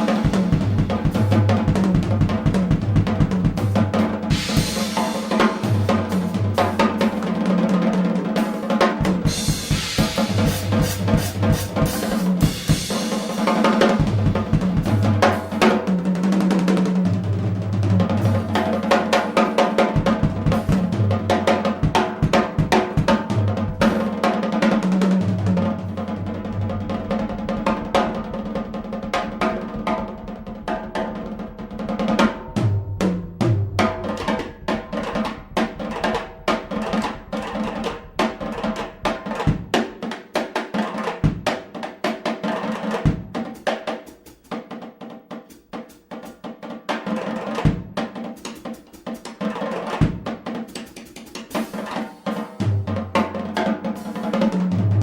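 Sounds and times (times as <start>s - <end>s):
jazz drum kit: 0.0s - 55.0s
low bass notes: 32.4s - 39.2s.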